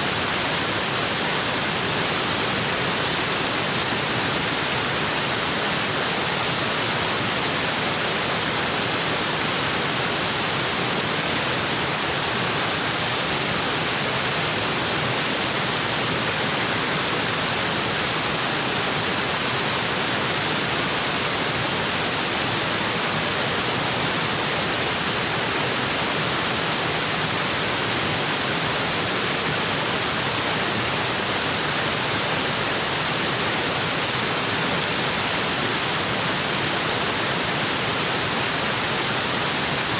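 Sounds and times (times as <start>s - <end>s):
waterfall onto rocks: 0.0s - 39.9s.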